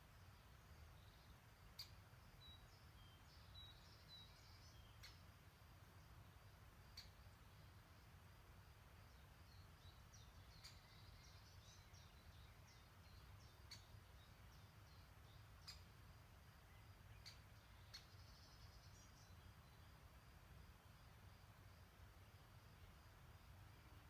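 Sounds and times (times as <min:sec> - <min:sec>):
songbird chirps and twitters: 0:00.0 - 0:24.0.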